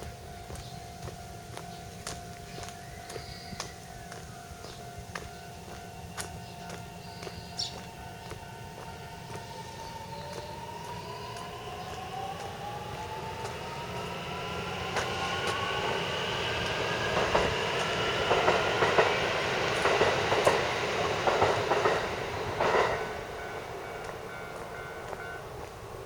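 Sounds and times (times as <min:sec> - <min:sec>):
wheels clacking over rail joints: 0:00.0 - 0:26.0
electric train motor whine: 0:05.2 - 0:26.0.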